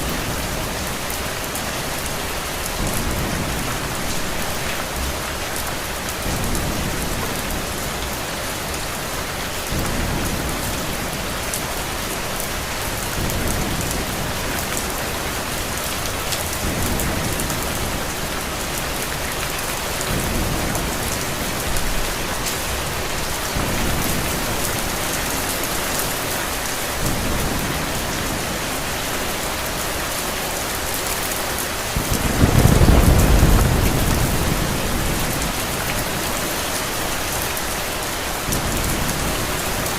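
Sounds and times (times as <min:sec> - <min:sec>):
rain falling: 0:00.0 - 0:39.9
thunder rumbling: 0:31.7 - 0:37.4.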